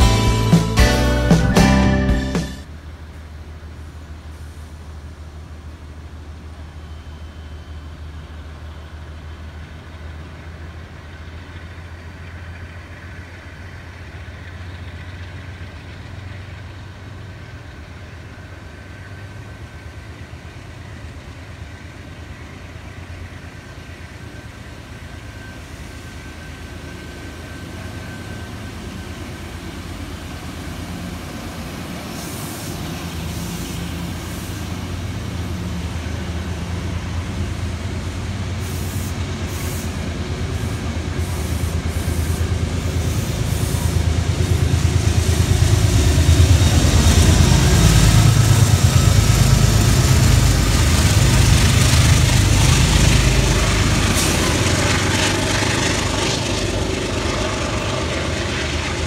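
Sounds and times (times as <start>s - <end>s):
thin high whine: 0.0s - 2.7s
diesel locomotive engine hum: 0.0s - 59.0s
train coaches rolling past: 0.0s - 59.0s.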